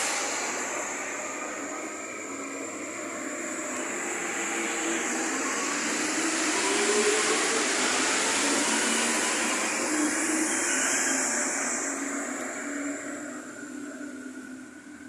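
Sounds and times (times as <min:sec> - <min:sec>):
train running noise: 0:00.0 - 0:15.0.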